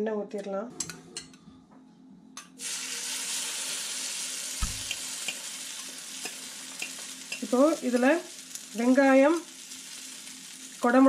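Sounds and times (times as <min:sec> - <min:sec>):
egg mixture sizzling in oil: 0:02.6 - 0:11.0
low thump: 0:04.6 - 0:04.9
spoon clicking against bowl: 0:06.2 - 0:08.1.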